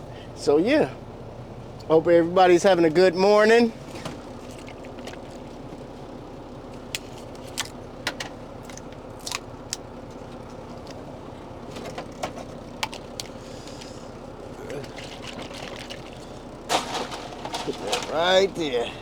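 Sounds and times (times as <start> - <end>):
vehicle engine idling: 0.0 - 19.0
clicks and rattles of objects: 11.7 - 14.0, 14.7 - 18.5.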